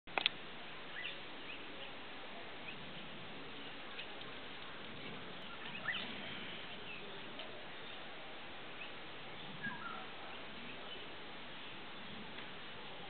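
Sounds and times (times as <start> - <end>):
sharp clicks: 0.1 - 0.4
steady background hiss: 0.1 - 13.0
faint bird chirps: 0.9 - 2.0, 2.6 - 13.0.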